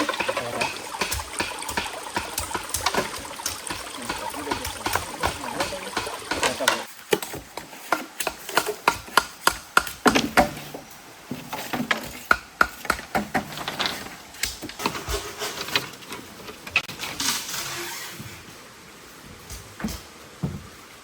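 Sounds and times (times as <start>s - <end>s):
bamboo being chopped: 0.0s - 10.8s.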